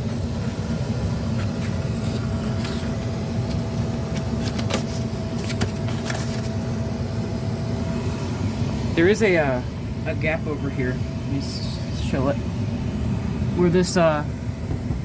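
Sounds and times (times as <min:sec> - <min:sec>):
air conditioner blower hum: 0:00.0 - 0:15.0.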